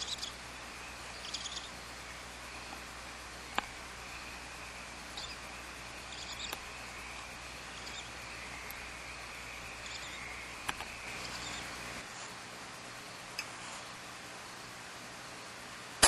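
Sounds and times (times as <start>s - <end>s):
owls hissing: 0.0s - 12.1s
microphone hiss: 0.0s - 16.0s.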